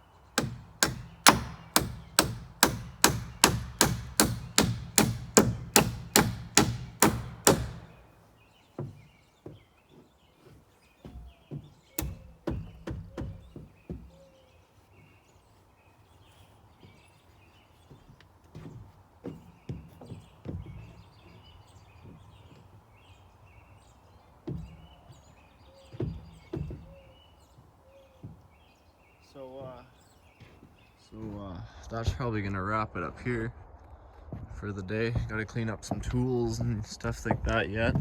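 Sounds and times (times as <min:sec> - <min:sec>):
hammer striking wood framing: 0:00.3 - 0:09.1, 0:11.0 - 0:14.2, 0:26.0 - 0:27.0.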